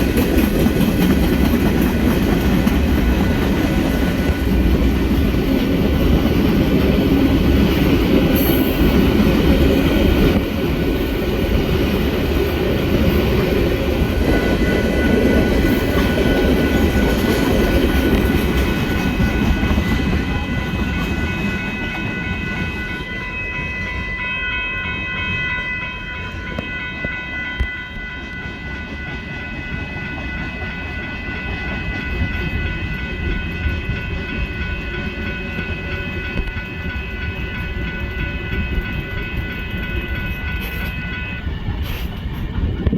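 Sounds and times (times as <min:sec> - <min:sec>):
train running on rails: 0:00.0 - 0:42.9.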